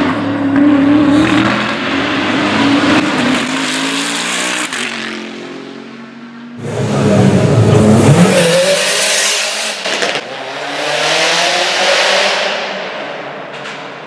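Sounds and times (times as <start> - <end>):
performance car engine accelerating: 6.6 - 14.0.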